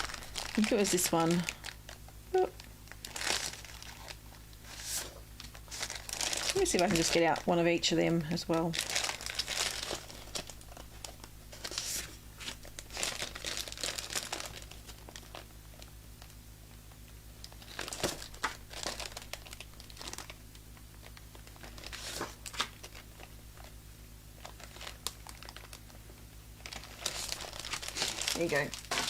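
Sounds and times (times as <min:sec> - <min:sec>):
paper rustling and crinkling: 0:00.0 - 0:01.8, 0:03.0 - 0:07.5, 0:08.5 - 0:15.5, 0:17.6 - 0:20.4, 0:21.0 - 0:23.7, 0:26.6 - 0:29.0.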